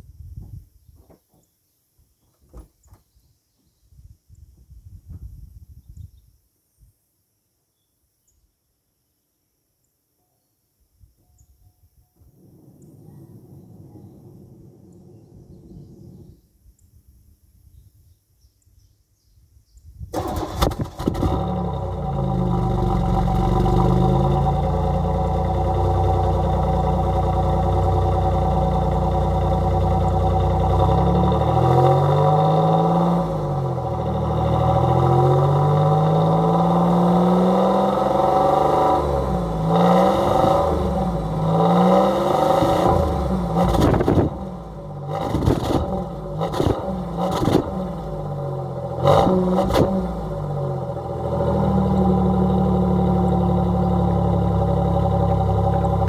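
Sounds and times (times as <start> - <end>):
car exhaust idling and revving: 20.2 - 56.0.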